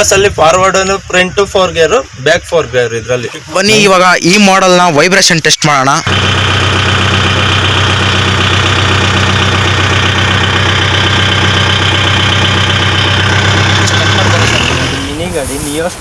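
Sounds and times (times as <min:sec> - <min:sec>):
diesel tractor engine idling: 0:06.0 - 0:16.0.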